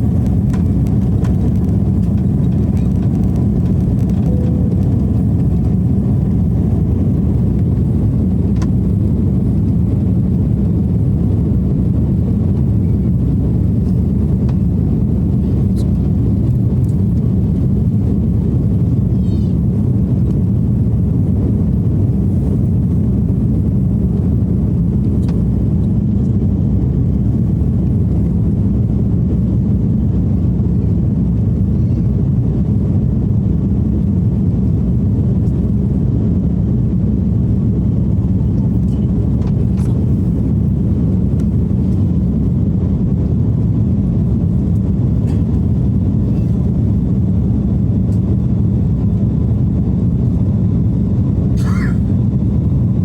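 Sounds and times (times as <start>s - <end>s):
air rushing around fuselage: 0.0s - 9.6s
jet engine rumble: 0.0s - 53.0s.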